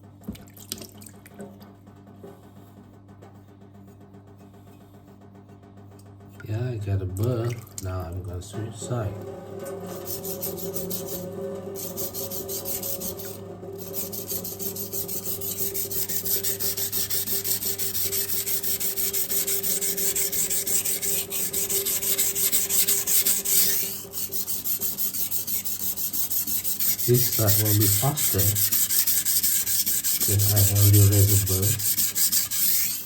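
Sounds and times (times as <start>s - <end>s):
knife grinding on sharpening stone: 9.6s - 33.0s.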